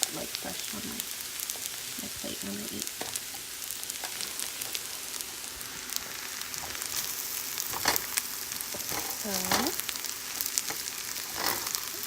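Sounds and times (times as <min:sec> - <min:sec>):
rice sizzling in a hot pan: 0:00.0 - 0:12.0
stirring utensil clatter: 0:06.6 - 0:09.8, 0:10.6 - 0:11.9.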